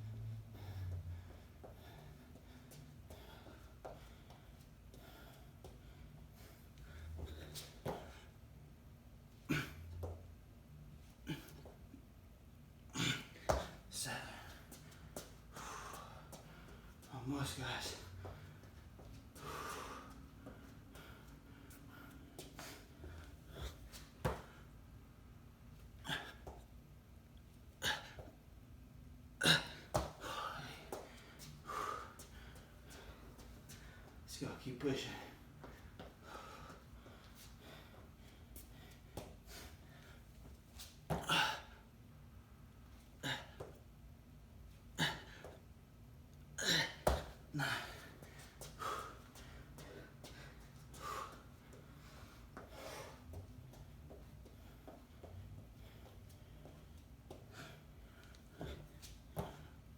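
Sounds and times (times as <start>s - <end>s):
person breathing hard: 0.2s - 8.3s, 13.0s - 17.0s, 19.4s - 24.7s, 29.4s - 34.3s, 35.1s - 40.3s, 46.6s - 53.4s.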